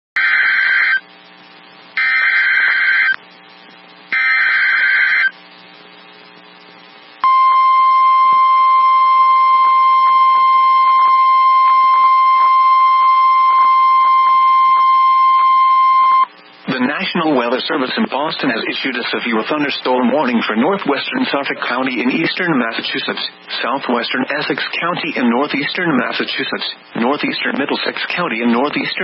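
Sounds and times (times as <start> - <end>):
steady warning alarm tone: 0.2 - 1.1, 2.0 - 3.2, 4.2 - 5.3, 7.2 - 16.3
screeching digital data bursts: 4.2 - 5.4.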